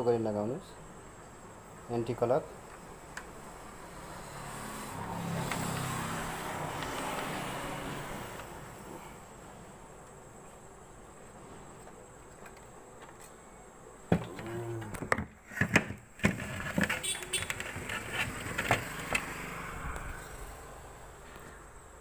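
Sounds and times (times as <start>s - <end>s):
clicks and scraping of plastic parts: 6.7s - 7.4s, 14.3s - 19.4s.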